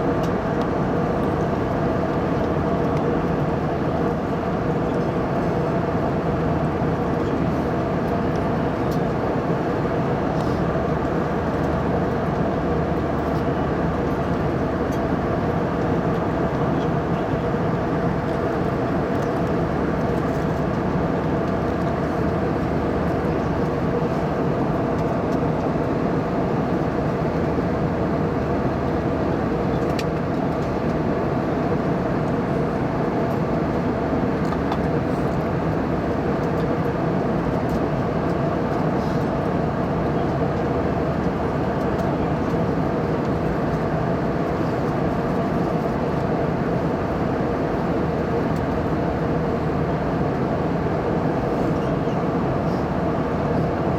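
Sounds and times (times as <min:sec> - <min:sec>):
jet cabin engine and airflow rush: 0:00.0 - 0:53.9.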